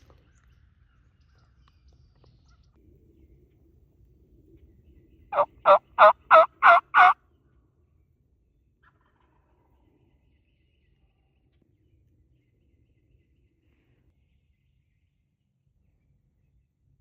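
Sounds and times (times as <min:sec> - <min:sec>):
turkey yelping: 0:05.4 - 0:07.2.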